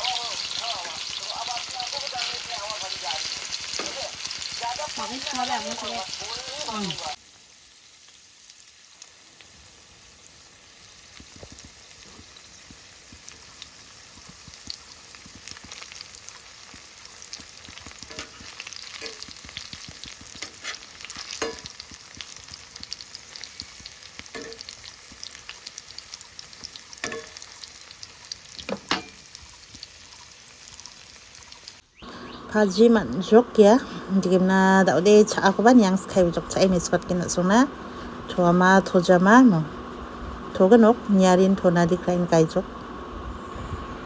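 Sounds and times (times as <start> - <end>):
food sizzling in a pan: 0.0 - 44.0
spatula scraping a pan: 17.6 - 22.4.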